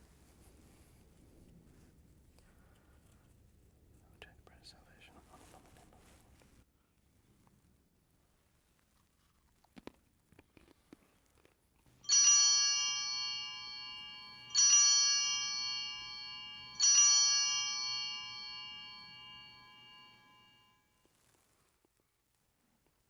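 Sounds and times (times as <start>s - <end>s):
altar bell ringing: 12.0s - 20.7s.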